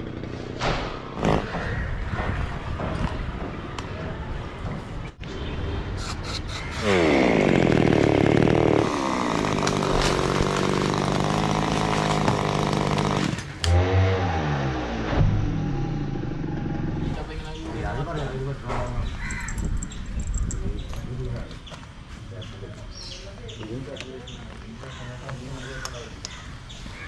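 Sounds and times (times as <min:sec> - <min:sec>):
chainsaw engine revving: 0:00.0 - 0:01.6, 0:06.6 - 0:17.2.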